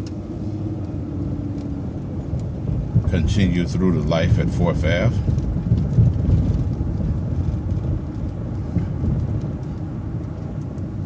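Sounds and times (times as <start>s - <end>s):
bus driving along street: 0.0s - 11.0s.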